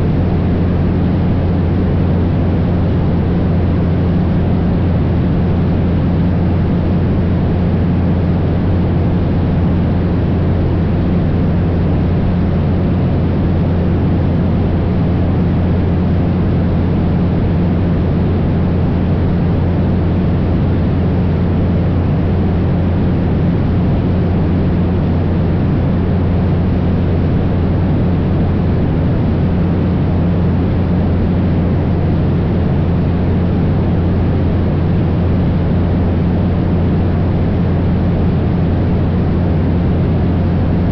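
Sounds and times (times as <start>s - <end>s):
propeller engine droning: 0.0s - 40.9s.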